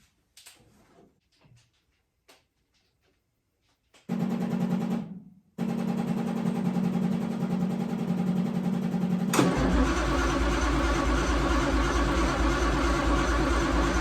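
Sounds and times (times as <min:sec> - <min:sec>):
car engine cranking and starting: 0:09.1 - 0:14.0.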